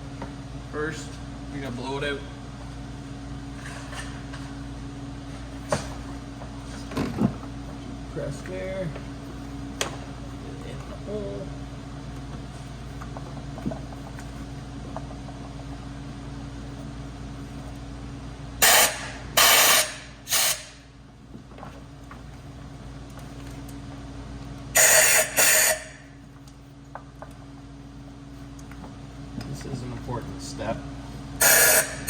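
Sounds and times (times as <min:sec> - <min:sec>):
steady low hum: 0:00.0 - 0:32.0
air blow gun hissing blasts: 0:18.6 - 0:20.8.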